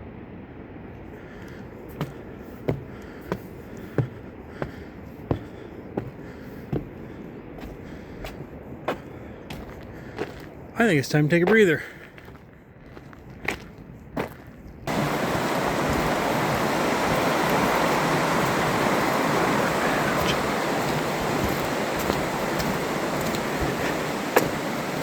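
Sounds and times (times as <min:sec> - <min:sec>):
rushing water: 0:14.9 - 0:25.0.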